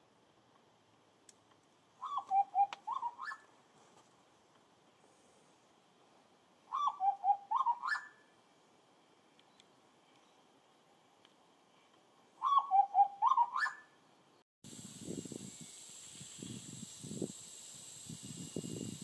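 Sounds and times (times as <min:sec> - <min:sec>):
bird whistling call: 0:02.0 - 0:03.5, 0:06.7 - 0:08.2, 0:12.4 - 0:13.9.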